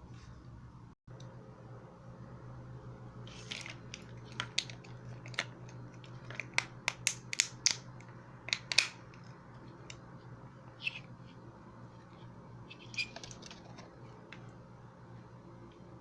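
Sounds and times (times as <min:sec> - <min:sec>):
steady low hum: 0:00.0 - 0:16.0
small parts clicking and snapping: 0:03.3 - 0:07.8, 0:08.4 - 0:09.2.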